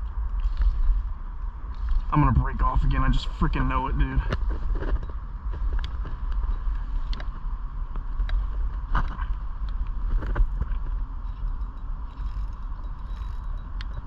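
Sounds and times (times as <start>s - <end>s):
light reel clicks: 11.2s - 14.0s
fishing reel being cranked: 12.1s - 14.0s.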